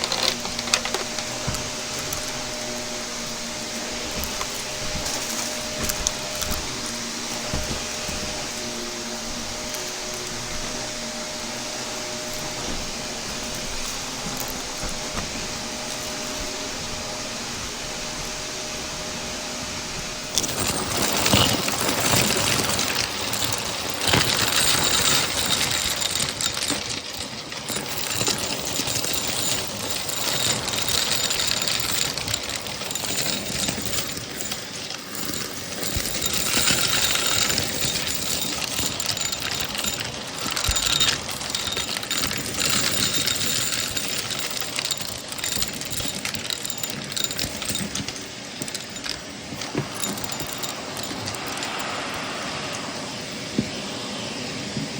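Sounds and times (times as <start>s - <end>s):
vacuum cleaner humming: 0.0s - 54.9s
vacuum sucking up crunchy debris: 0.0s - 54.9s.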